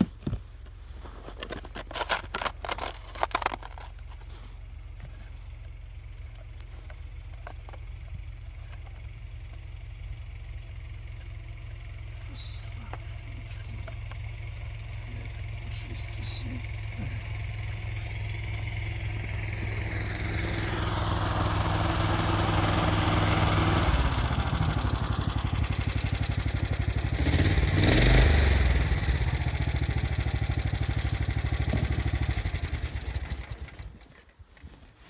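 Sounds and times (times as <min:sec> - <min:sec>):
motorcycle riding by: 0:11.7 - 0:33.8.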